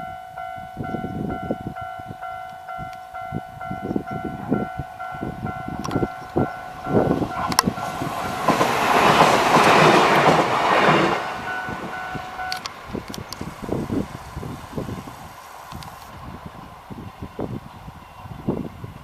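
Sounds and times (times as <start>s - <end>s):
level crossing bell ringing: 0.0s - 8.5s, 11.3s - 12.7s
train wheels clattering over rail joints: 5.8s - 14.9s.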